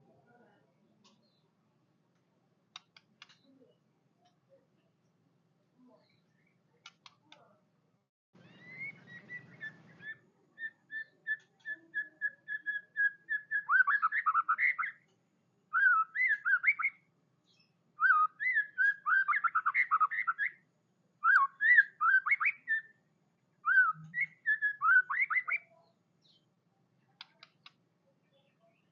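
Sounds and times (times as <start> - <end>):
songbird singing whistled notes: 8.4 - 15.0, 15.7 - 20.6, 21.2 - 23.0, 23.6 - 26.5.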